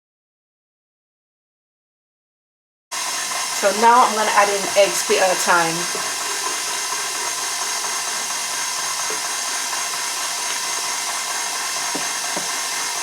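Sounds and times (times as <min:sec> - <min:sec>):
electric mixer whirring: 0:03.0 - 0:13.0.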